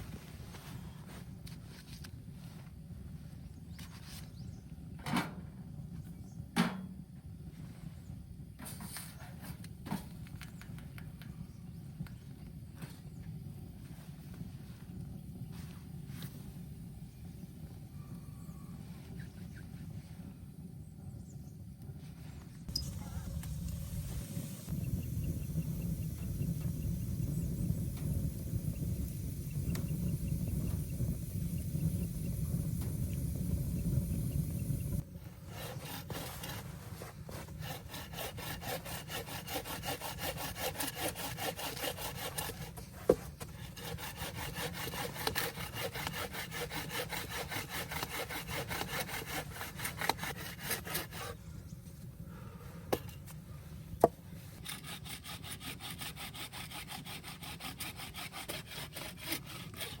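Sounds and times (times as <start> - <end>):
low rumble: 22.7 - 35.0
hand saw cutting wood: 22.7 - 51.4, 54.6 - 60.0.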